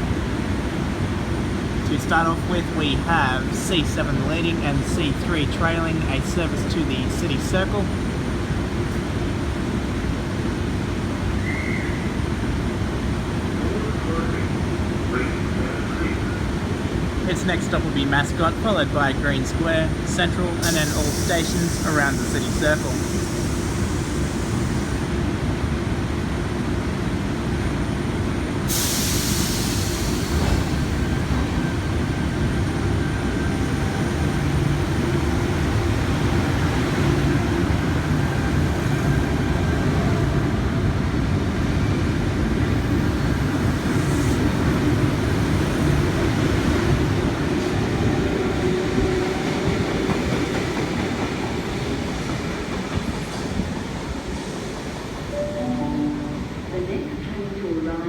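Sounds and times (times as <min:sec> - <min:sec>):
electric train rumbling: 0:00.0 - 0:58.0
air hiss: 0:20.6 - 0:25.1, 0:28.7 - 0:32.1.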